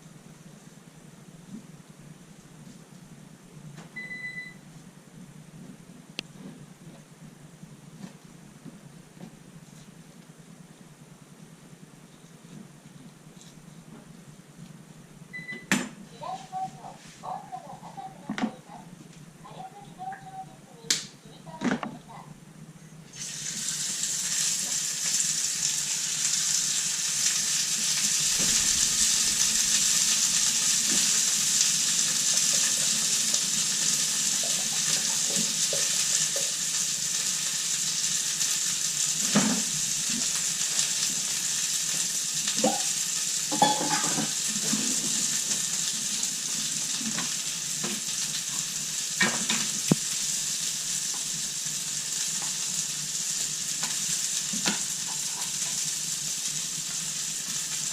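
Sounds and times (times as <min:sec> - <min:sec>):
food sizzling in a frying pan: 0:23.1 - 0:57.9.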